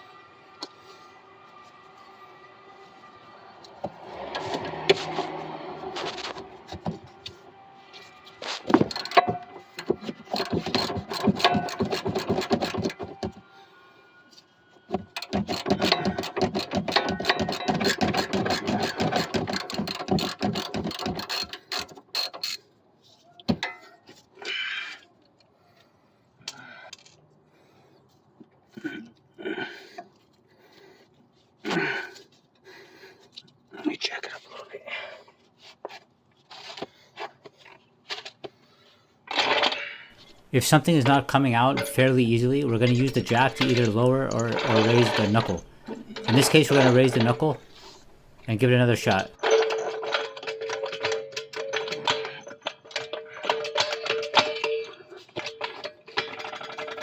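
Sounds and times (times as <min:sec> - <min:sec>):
hand ratchet clicking: 0:08.6 - 0:13.0, 0:15.2 - 0:22.6.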